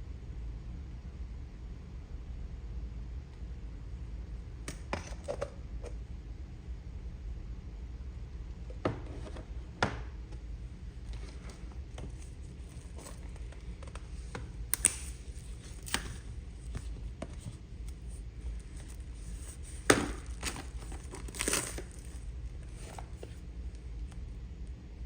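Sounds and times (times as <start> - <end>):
sharp clicks and rustles: 11.0 - 23.4
packaging crinkling and tearing: 12.1 - 17.0, 17.9 - 23.4.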